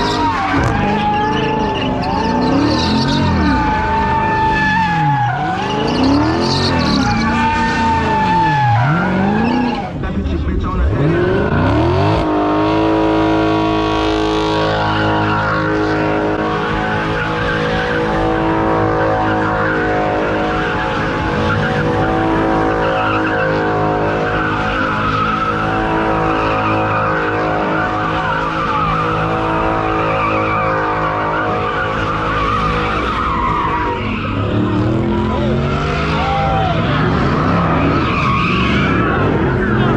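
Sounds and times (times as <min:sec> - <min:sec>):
tyres squealing: 0:00.0 - 0:10.0
car engine revving: 0:00.0 - 0:39.9.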